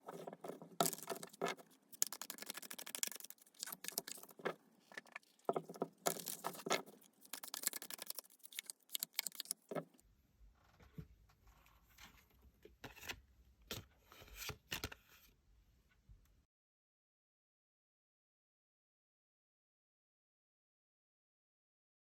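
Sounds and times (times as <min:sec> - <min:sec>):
cards being shuffled: 0:00.1 - 0:09.8.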